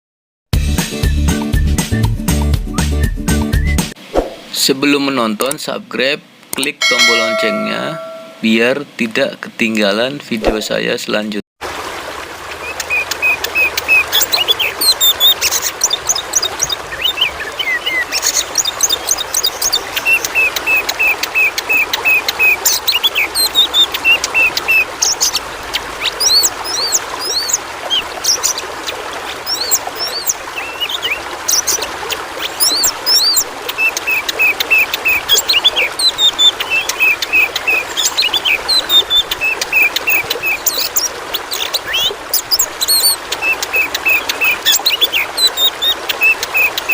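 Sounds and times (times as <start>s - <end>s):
trickling water: 6.8s - 8.6s, 11.6s - 46.9s
bird singing whistled notes: 32.6s - 46.9s.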